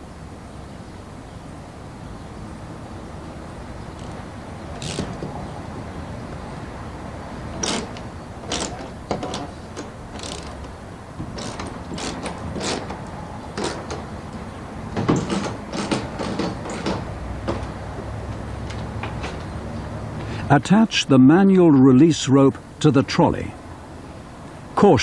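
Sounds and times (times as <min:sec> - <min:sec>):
metallic clicks and clanks: 0:07.6 - 0:17.7.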